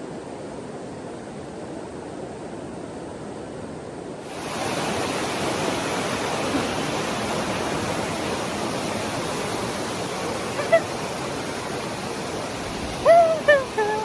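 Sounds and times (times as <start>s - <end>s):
rushing river water: 4.2s - 14.0s.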